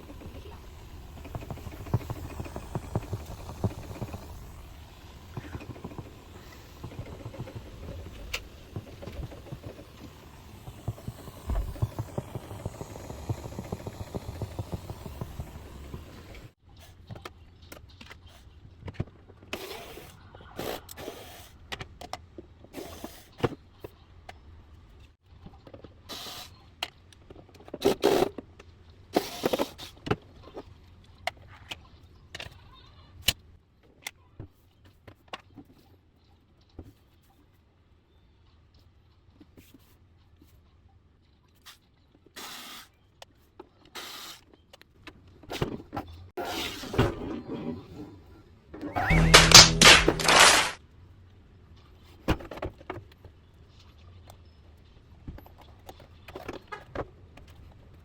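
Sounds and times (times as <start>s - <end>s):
rustling bursts: 49.0s - 50.8s.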